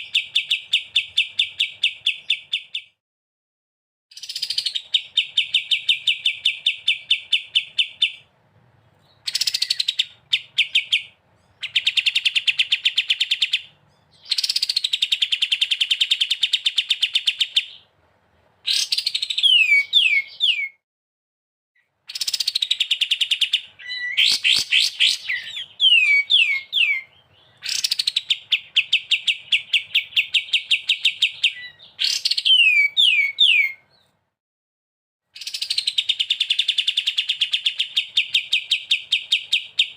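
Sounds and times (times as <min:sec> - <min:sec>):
songbird rattling trill: 0:09.2 - 0:17.7, 0:22.1 - 0:33.7
descending whistled bird notes: 0:09.2 - 0:17.8, 0:18.7 - 0:20.8, 0:22.1 - 0:34.0.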